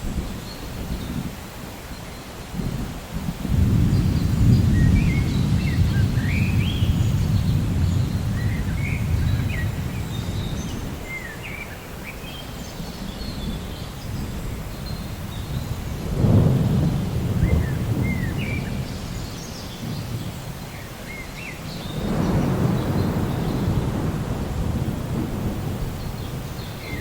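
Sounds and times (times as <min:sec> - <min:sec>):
thunder rumbling: 0:02.6 - 0:11.2, 0:13.4 - 0:20.6, 0:21.8 - 0:27.0
birds chirping: 0:03.8 - 0:27.0.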